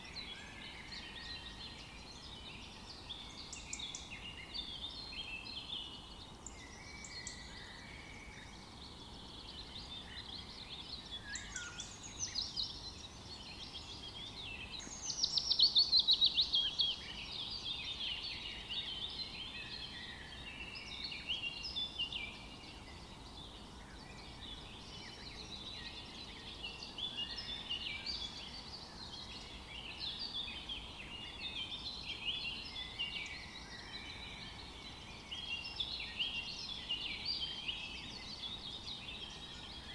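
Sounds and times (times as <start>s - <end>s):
birds singing and calling: 0.0s - 39.9s
faint steady hiss: 0.0s - 39.9s.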